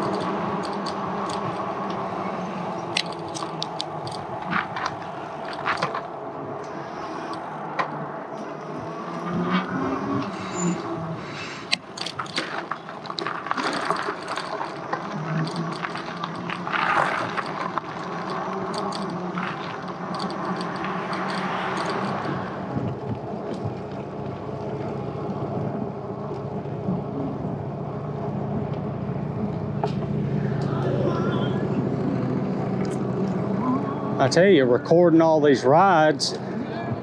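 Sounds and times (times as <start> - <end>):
clattering knocks and rattles: 0.0 - 2.0, 2.8 - 6.2, 11.7 - 27.7
steady hum: 0.0 - 37.0
tyre and road rush: 0.0 - 37.0.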